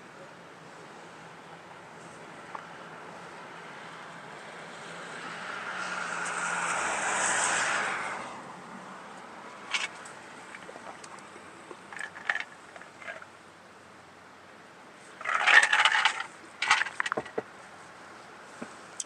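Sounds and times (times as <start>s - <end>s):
car passing by: 2.6s - 10.6s.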